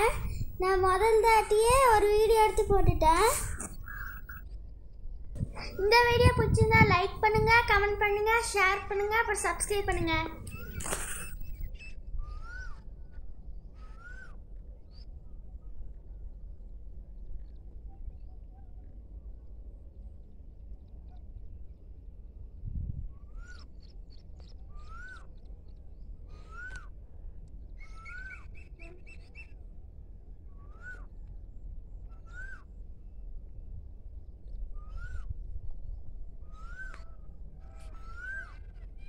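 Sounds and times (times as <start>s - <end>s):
low rumble: 0.0s - 11.7s
bird calling: 3.1s - 4.4s, 10.3s - 12.8s
harsh rasping bird calls: 3.1s - 4.4s, 10.0s - 12.8s.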